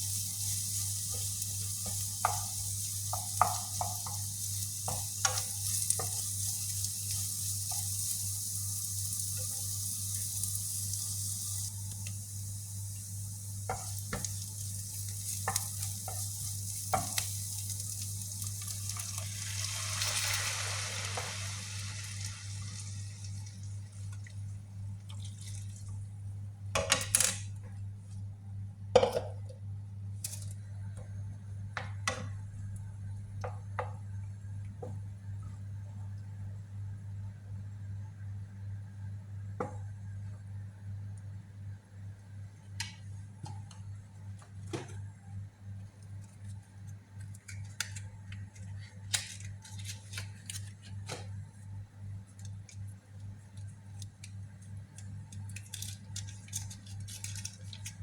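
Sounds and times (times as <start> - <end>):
meatballs sizzling in a pan: 0.0 - 25.0.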